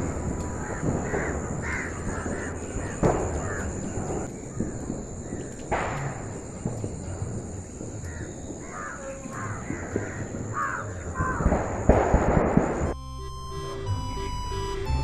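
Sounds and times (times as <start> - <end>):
crows cawing: 0.0 - 6.4, 7.9 - 12.3
steady high-pitched tone: 12.7 - 15.0
music: 12.9 - 15.0.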